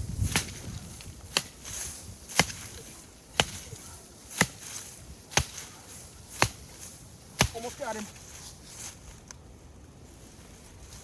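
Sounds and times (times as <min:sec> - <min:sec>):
axe chopping into tree trunk: 0:02.3 - 0:02.8, 0:03.4 - 0:03.6, 0:05.3 - 0:05.7, 0:06.3 - 0:06.7.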